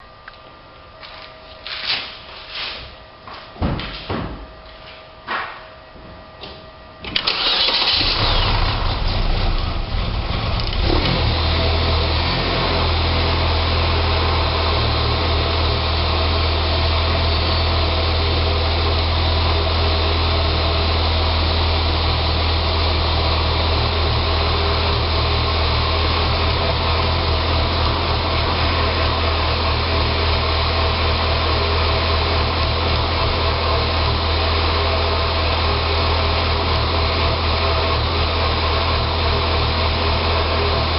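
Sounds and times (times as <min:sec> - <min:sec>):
car engine starting and idling: 0:07.0 - 0:40.9.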